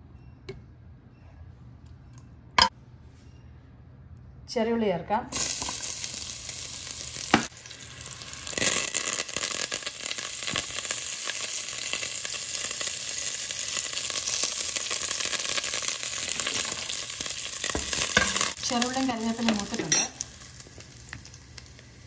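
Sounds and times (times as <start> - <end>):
shallots sizzling in hot oil: 5.3 - 22.0.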